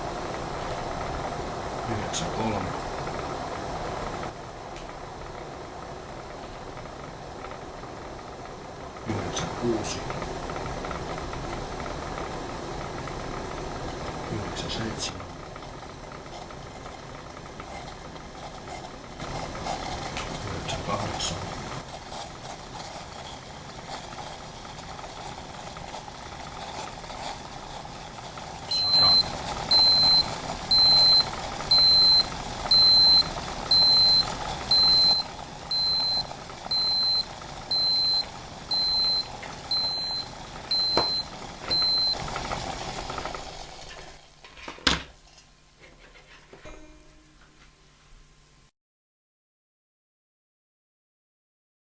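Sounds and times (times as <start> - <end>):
water boiling and bubbling: 0.0 - 44.5
high electronic beep: 28.7 - 42.2.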